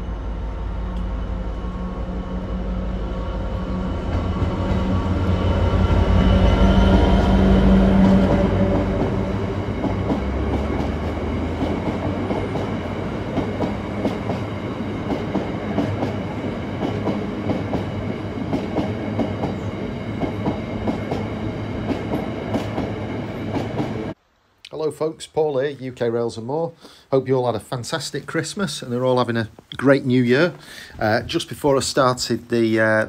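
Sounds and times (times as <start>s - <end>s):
diesel locomotive engine: 0.0s - 24.2s
train rumble: 0.0s - 24.2s
train wheels clicking over rail joints: 6.9s - 24.0s.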